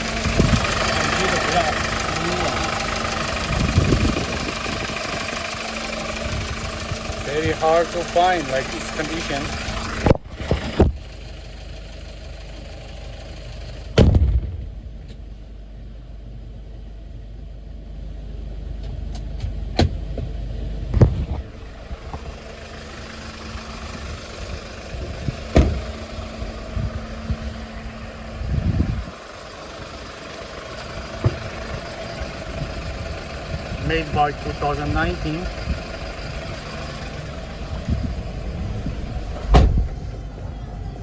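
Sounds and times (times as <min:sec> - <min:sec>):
truck engine idling: 0:00.0 - 0:41.0
sharp bangs: 0:13.9 - 0:15.2.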